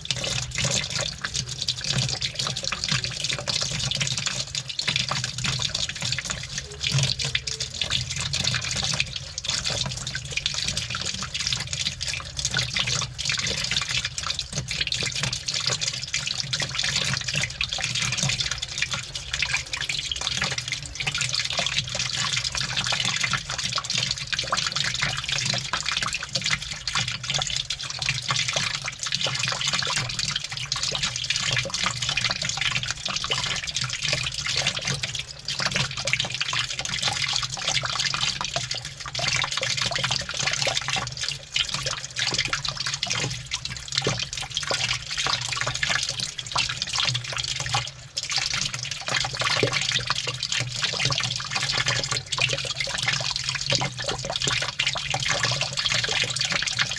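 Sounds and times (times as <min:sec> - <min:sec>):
water sloshing in washing machine: 0:00.0 - 0:56.9.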